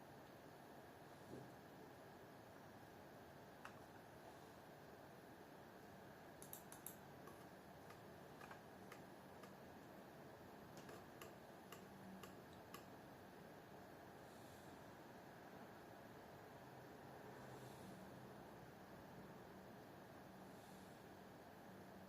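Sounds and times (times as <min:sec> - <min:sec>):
low steady hiss: 0:00.0 - 0:22.0
faint clicks: 0:03.6 - 0:03.9, 0:06.4 - 0:09.6, 0:10.7 - 0:12.9.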